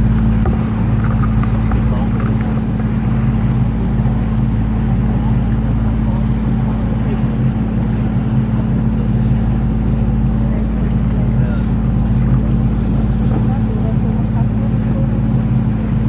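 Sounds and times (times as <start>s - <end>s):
boat motor droning: 0.0s - 16.0s.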